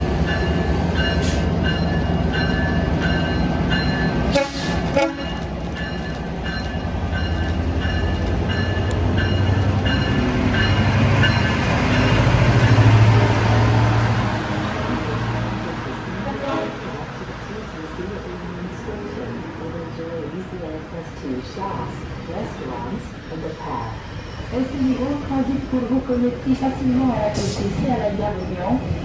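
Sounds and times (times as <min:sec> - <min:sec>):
locomotive engine drone: 0:00.0 - 0:29.0
train horn blasts: 0:04.3 - 0:05.4.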